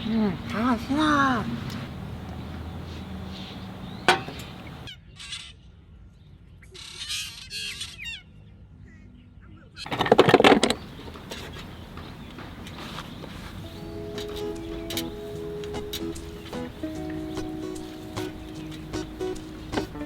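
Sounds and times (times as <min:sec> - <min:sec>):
bird honking call: 0:00.0 - 0:04.9, 0:12.8 - 0:20.0
birds chirping: 0:00.0 - 0:04.9, 0:09.9 - 0:20.0.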